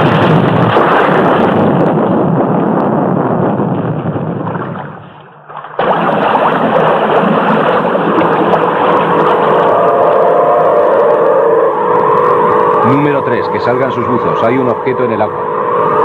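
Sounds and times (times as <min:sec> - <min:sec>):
motorboat engine running: 0:00.0 - 0:16.0
loud rushing noise: 0:05.8 - 0:16.0.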